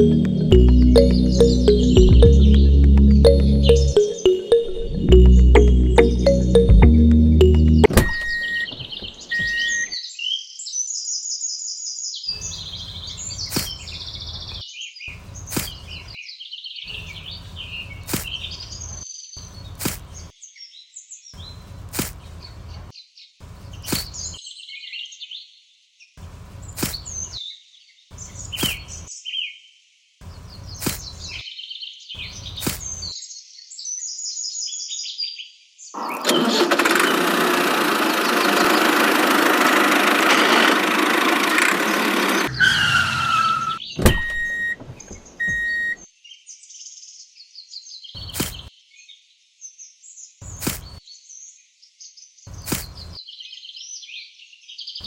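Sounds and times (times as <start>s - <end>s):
birds chirping: 0.0s - 10.0s, 42.2s - 46.0s
short beeps: 3.2s - 9.9s, 44.1s - 44.8s, 45.4s - 46.0s
falling whistle: 42.4s - 44.8s.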